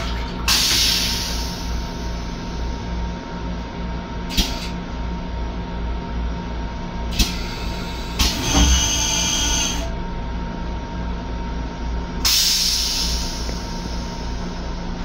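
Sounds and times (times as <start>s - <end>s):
railcar rumble and hum: 0.0s - 15.0s.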